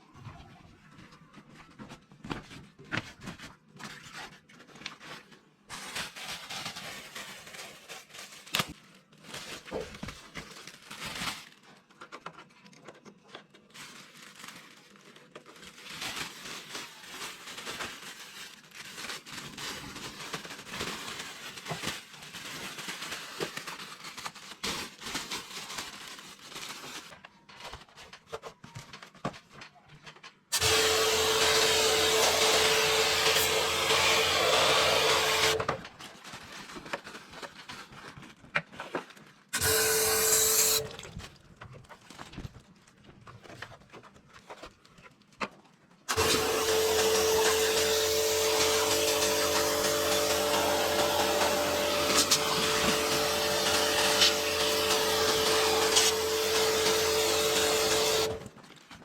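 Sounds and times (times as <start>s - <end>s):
pressure washer running: 30.6s - 35.7s, 39.6s - 41.0s, 46.1s - 58.5s.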